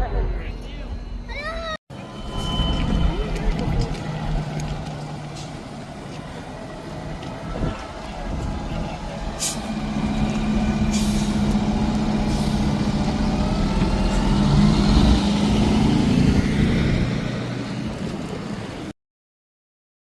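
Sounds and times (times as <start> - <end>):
diesel engine pulling away: 1.9 - 18.9.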